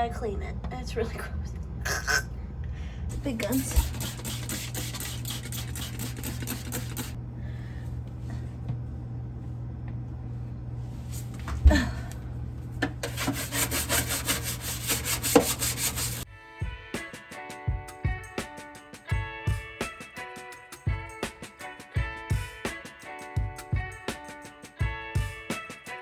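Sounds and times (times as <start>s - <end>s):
steady low hum: 0.0s - 16.3s
scrubbing refrigerator shelf: 3.1s - 7.2s, 12.8s - 16.2s.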